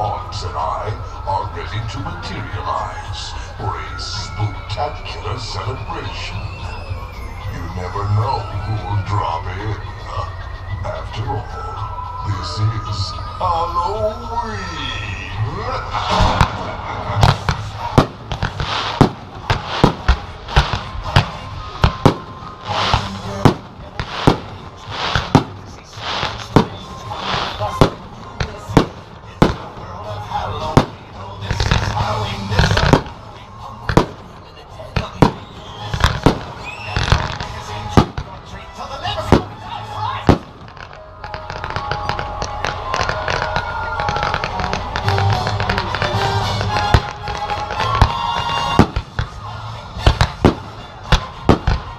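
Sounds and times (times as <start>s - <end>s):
fireworks bursting with bangs: 0.0s - 14.6s, 15.2s - 51.9s
background music: 0.0s - 51.9s
fireworks crackling hiss: 14.2s - 51.9s.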